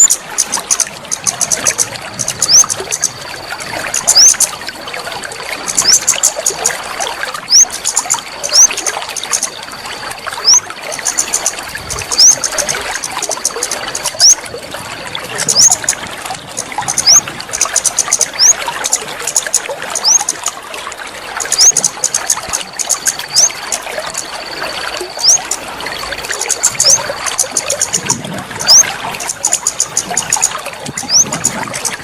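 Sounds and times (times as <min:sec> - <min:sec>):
rapid high ticking: 0:00.0 - 0:04.6, 0:05.7 - 0:06.8, 0:07.4 - 0:09.7, 0:10.4 - 0:14.4, 0:15.4 - 0:20.6, 0:21.2 - 0:32.0
water trickling: 0:00.0 - 0:32.0
high rising chirp: 0:20.0 - 0:20.2, 0:25.2 - 0:25.5.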